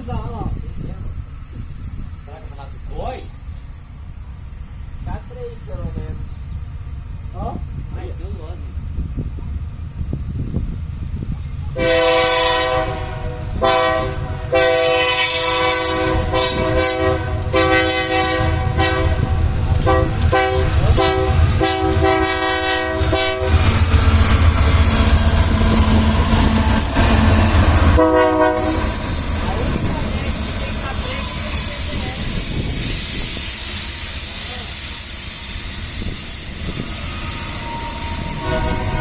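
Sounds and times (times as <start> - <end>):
locomotive engine droning: 0.0 - 39.0
locomotive air horn blasts: 11.8 - 23.7, 27.0 - 31.7, 37.3 - 39.0.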